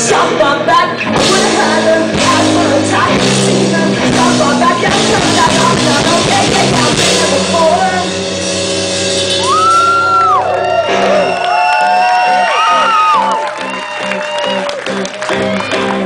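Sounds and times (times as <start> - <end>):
indie rock band playing live: 0.0 - 16.0
whistle rising: 9.4 - 11.8.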